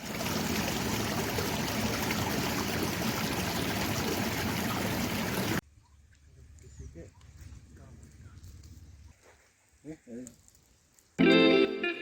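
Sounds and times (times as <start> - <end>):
stream water flowing: 0.0 - 5.6.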